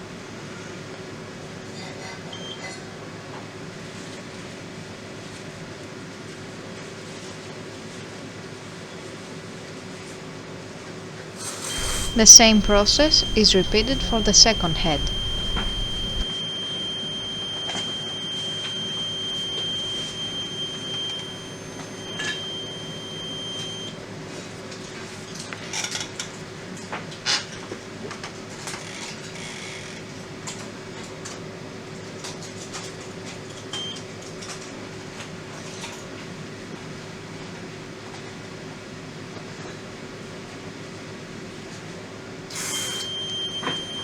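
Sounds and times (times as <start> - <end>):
steady low hum: 11.8 - 16.3
high-pitched alarm tone: 11.8 - 23.8.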